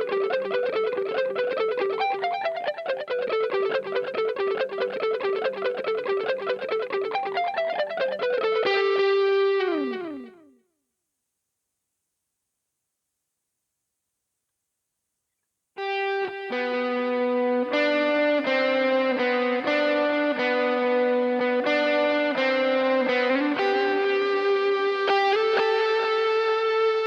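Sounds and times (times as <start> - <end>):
distorted electric guitar: 0.0 - 10.5, 15.8 - 27.0.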